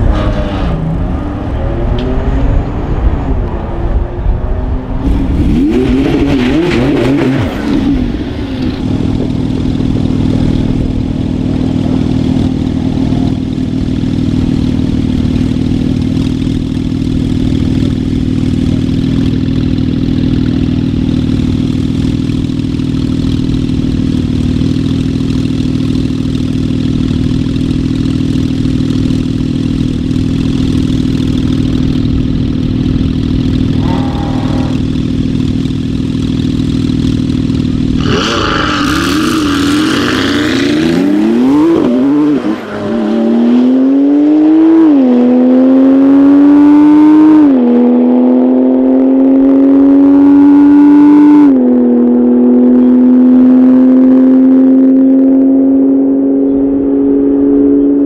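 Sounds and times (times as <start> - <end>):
car engine idling: 7.7 - 38.2.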